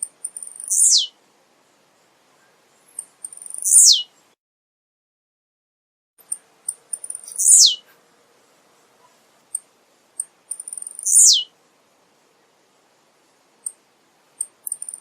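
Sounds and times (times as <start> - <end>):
bird short high ticks: 9.5 - 11.4, 14.4 - 15.0.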